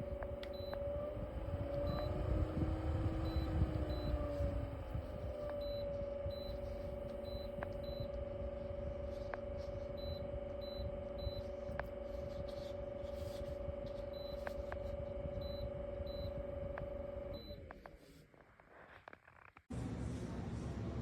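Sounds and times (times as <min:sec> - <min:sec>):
air cooler fan humming: 0:00.0 - 0:05.6
constant whine: 0:00.0 - 0:21.0.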